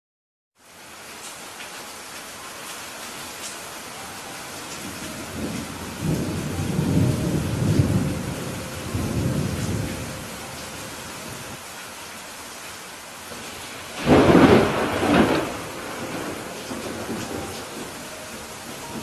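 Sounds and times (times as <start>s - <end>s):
steady rain hissing: 0.6s - 19.0s
rolling thunder rumble: 4.8s - 11.6s, 13.4s - 19.0s.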